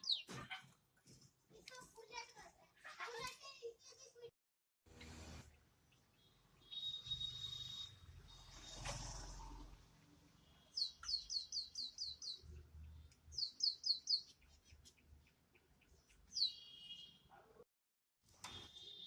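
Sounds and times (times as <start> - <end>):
pet bird chirping: 0.0 - 0.5, 10.6 - 17.1.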